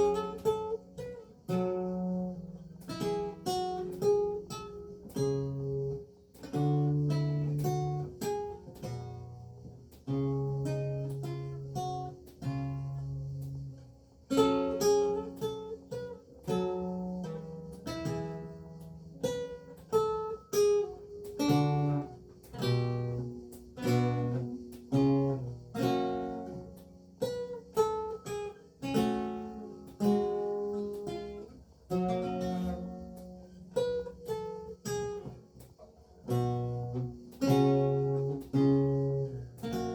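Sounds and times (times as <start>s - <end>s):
solo lute playing: 0.0s - 35.5s, 36.1s - 39.9s.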